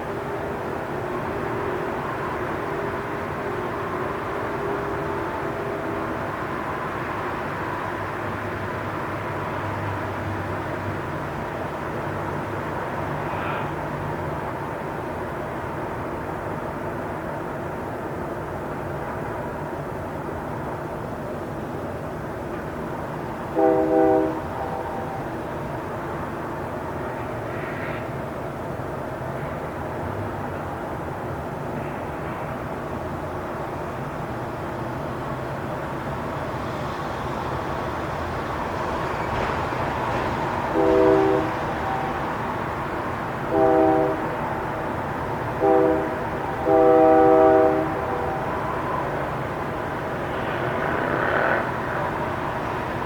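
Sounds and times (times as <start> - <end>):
railway station rumble and hiss: 0.0 - 53.0
train horn blast: 23.5 - 25.3, 40.7 - 42.3, 43.4 - 44.4, 45.6 - 48.7.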